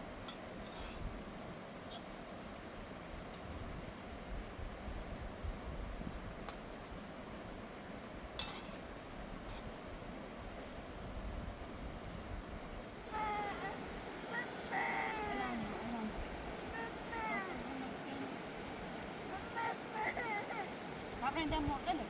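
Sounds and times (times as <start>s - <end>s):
cricket chirping: 0.0s - 15.3s.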